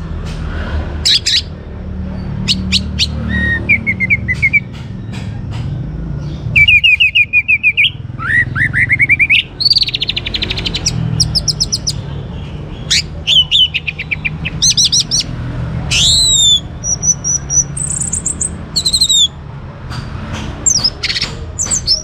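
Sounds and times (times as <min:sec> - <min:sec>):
thrush singing: 0:06.5 - 0:19.4.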